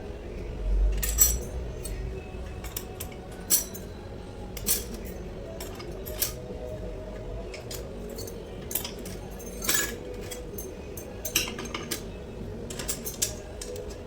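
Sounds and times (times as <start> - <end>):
metallic clinks of tools: 1.0 - 2.0, 2.6 - 3.9, 7.6 - 12.1, 12.7 - 14.0.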